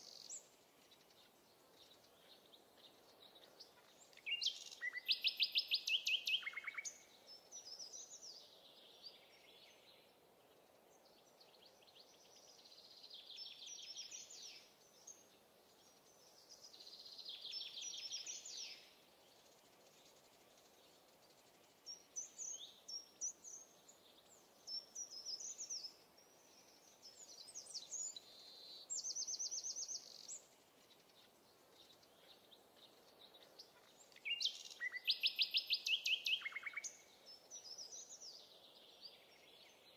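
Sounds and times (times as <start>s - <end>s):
faint outdoor hiss: 0.0s - 39.9s
songbirds singing: 0.0s - 39.9s.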